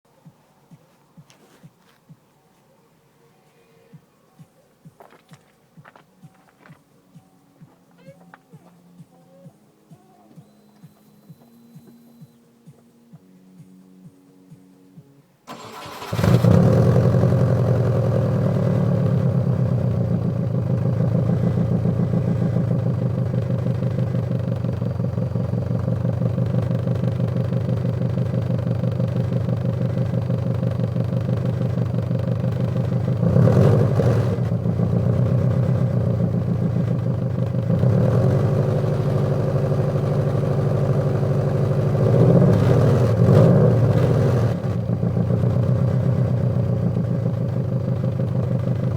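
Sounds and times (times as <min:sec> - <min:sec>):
car engine idling: 0:15.5 - 0:48.9
car engine starting: 0:15.5 - 0:48.9
engine throttle blips: 0:15.5 - 0:48.9.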